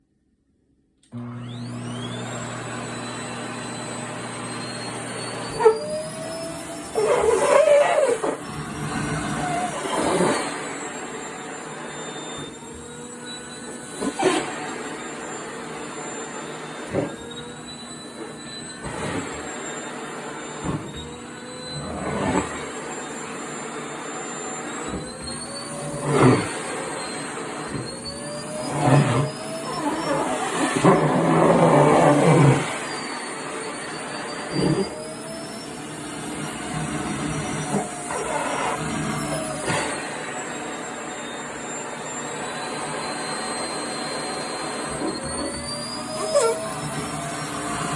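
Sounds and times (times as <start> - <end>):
vacuum cleaner running: 1.0 - 47.9
fabric sucked into vacuum nozzle: 24.9 - 35.0.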